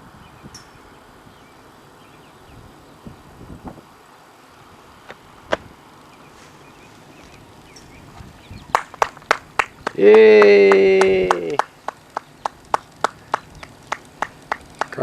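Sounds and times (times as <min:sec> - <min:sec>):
person clapping: 0:08.7 - 0:15.0.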